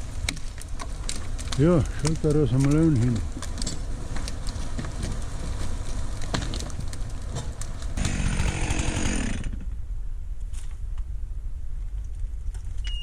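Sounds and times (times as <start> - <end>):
low engine rumble: 7.6 - 9.9
chainsaw revving: 8.0 - 9.7.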